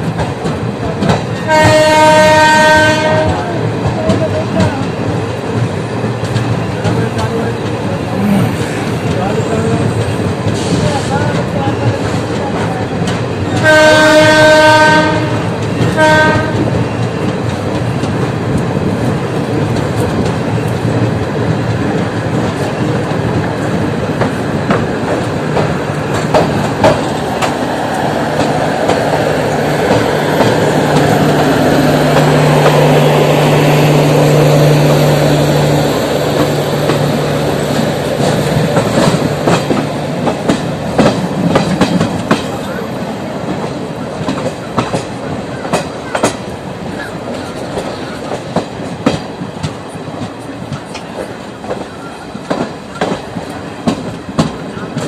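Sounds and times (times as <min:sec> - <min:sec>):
train coaches rumbling: 0:00.0 - 0:55.0
train horn blast: 0:01.5 - 0:03.5, 0:13.6 - 0:16.8
wheels clacking over rail joints: 0:08.6 - 0:55.0.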